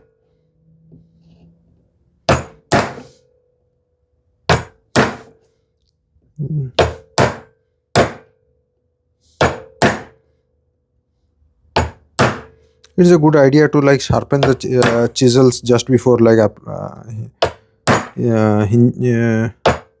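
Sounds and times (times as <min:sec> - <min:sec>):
chisel being struck: 0:02.3 - 0:03.2, 0:04.5 - 0:05.4, 0:06.8 - 0:08.4, 0:09.4 - 0:10.2, 0:11.8 - 0:12.6, 0:14.3 - 0:15.2, 0:17.4 - 0:18.2, 0:19.6 - 0:20.0.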